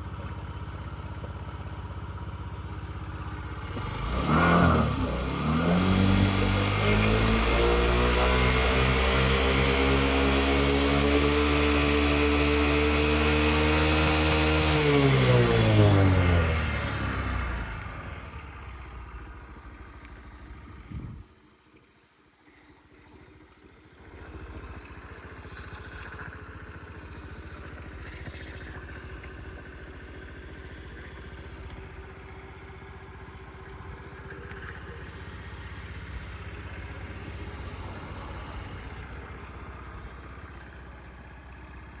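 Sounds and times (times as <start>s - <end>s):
scooter engine idling: 0.0s - 4.1s, 14.7s - 21.6s, 22.6s - 42.0s
engine cutting out with knock: 3.6s - 18.3s.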